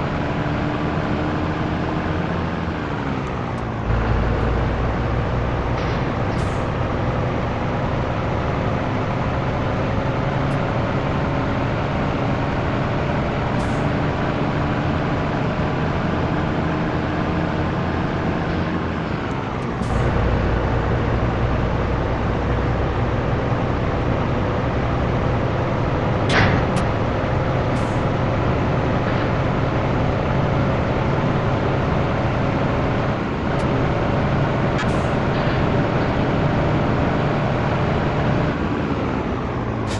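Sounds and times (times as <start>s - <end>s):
truck diesel engine under load: 0.0s - 39.9s.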